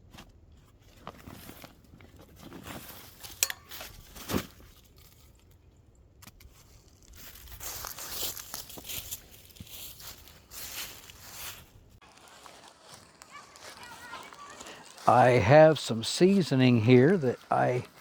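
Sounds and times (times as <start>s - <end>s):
packaging rustling and crinkling: 6.5s - 15.1s.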